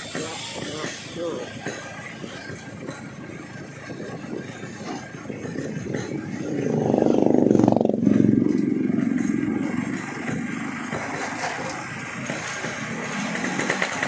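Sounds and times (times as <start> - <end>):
two-stroke motorcycle engine: 5.0 - 14.0.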